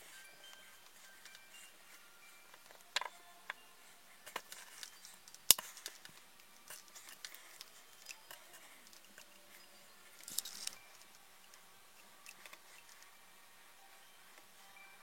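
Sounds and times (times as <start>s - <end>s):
small parts clicking: 4.2s - 13.1s.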